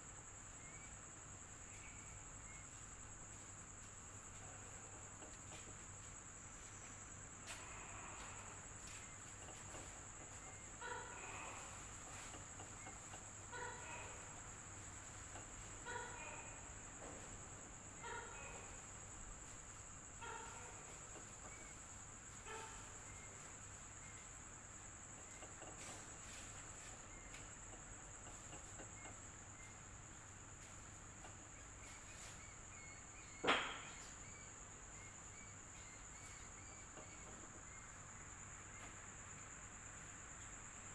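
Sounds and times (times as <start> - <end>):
crickets trilling: 0.0 - 40.9
short faint calls: 7.4 - 24.4.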